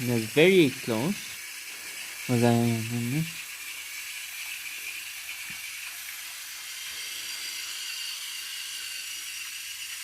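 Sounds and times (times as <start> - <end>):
toy train motor whirring: 0.0 - 10.0.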